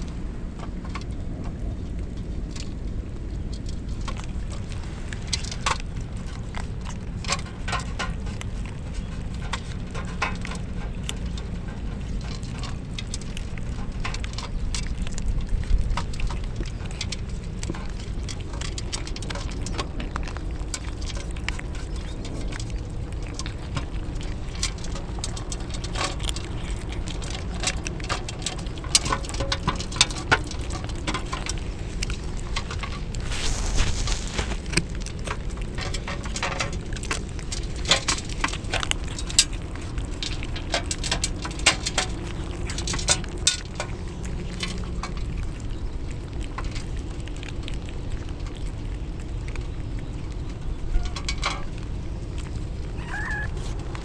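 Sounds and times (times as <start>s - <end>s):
wind rumble on microphone: 0.0s - 54.0s
raindrops pattering: 29.8s - 49.8s.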